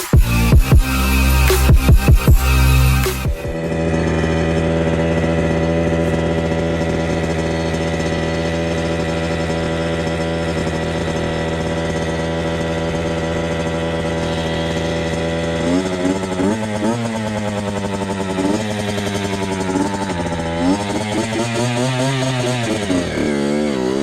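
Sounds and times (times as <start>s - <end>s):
two-stroke engine running: 0.0s - 24.0s.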